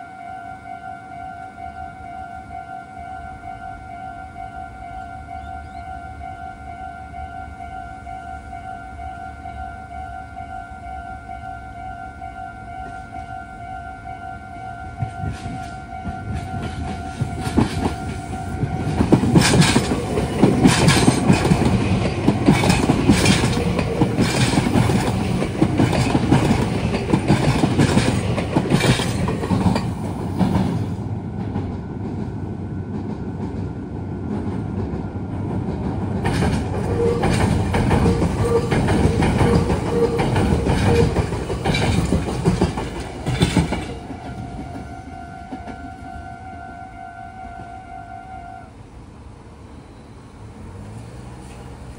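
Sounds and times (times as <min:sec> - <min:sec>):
train wheels clacking over rail joints: 0:15.0 - 0:44.9.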